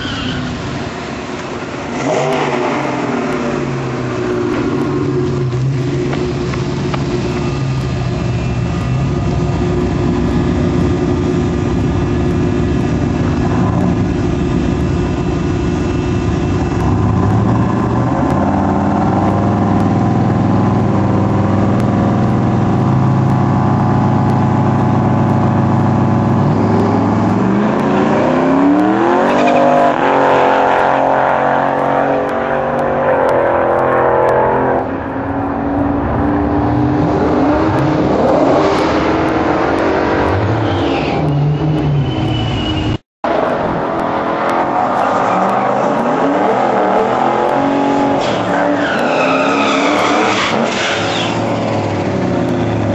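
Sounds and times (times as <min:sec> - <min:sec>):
truck engine revving: 0:00.0 - 0:52.9.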